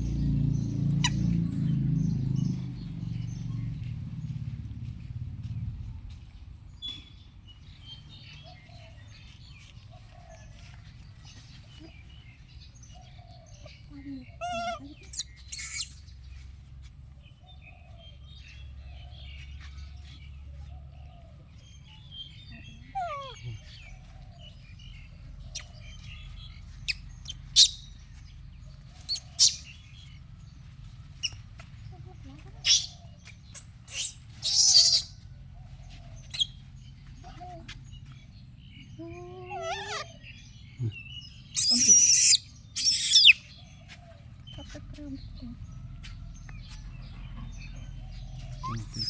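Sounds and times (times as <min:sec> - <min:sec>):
animal chirps and squeaks: 0:01.0 - 0:01.7, 0:13.3 - 0:16.1, 0:21.9 - 0:28.3, 0:28.9 - 0:30.2, 0:31.1 - 0:35.2, 0:35.9 - 0:38.2, 0:38.8 - 0:45.8, 0:46.7 - 0:49.0.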